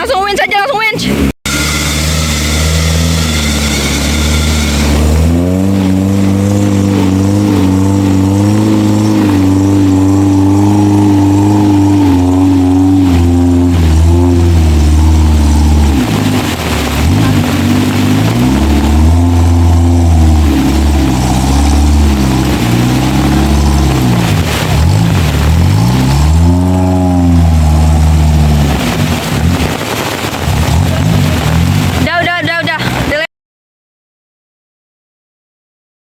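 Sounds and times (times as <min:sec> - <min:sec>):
off-road vehicle engine revving: 0:00.9 - 0:33.3
steady rushing noise: 0:01.0 - 0:33.3.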